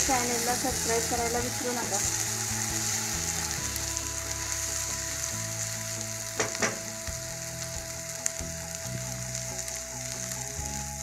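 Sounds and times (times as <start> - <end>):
paste sizzling in oil: 0.0 - 11.0
spatula hitting pan: 6.4 - 6.8.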